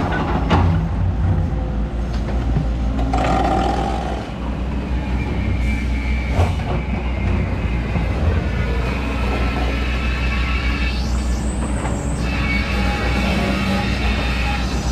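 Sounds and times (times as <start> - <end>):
heavy diesel engines rumbling: 0.0 - 14.9.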